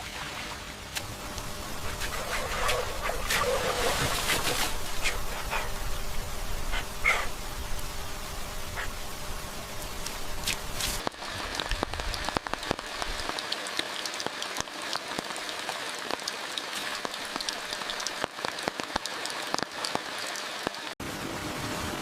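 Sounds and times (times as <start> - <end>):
heavy rain falling: 1.0 - 22.0
raindrops tapping a surface: 9.8 - 21.0.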